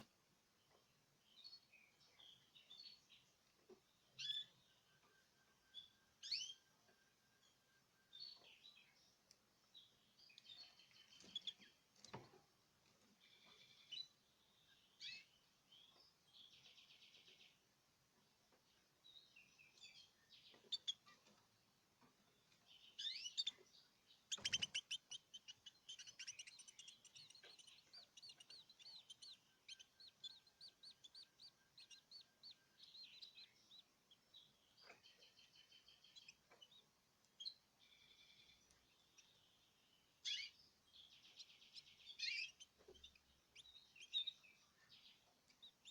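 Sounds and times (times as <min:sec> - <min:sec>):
canaries chirping and singing: 0:04.1 - 0:06.7, 0:09.8 - 0:12.3, 0:13.0 - 0:17.5, 0:19.1 - 0:21.4, 0:22.2 - 0:45.9.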